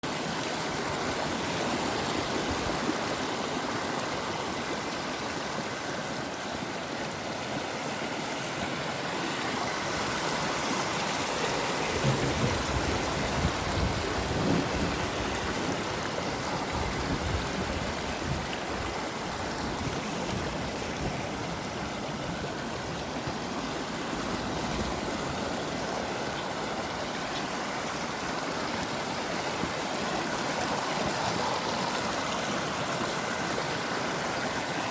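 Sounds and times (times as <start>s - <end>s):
rushing water: 0.0s - 34.9s
low thuds: 12.0s - 13.9s.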